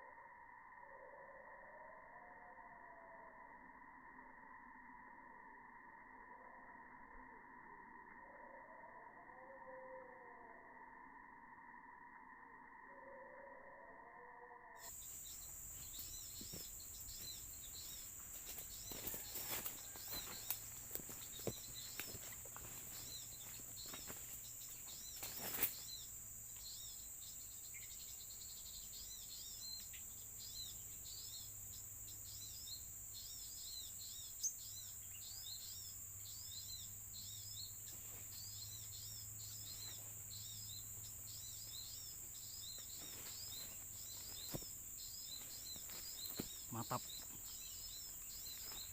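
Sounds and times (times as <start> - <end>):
high-pitched insect drone: 0.0 - 48.9
small birds chirping: 14.8 - 48.9.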